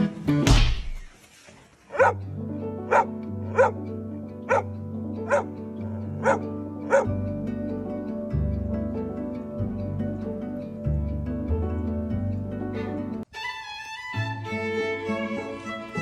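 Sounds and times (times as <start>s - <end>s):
dog barking: 1.9s - 2.2s, 2.9s - 3.8s, 4.5s - 7.2s
background music: 1.9s - 16.0s.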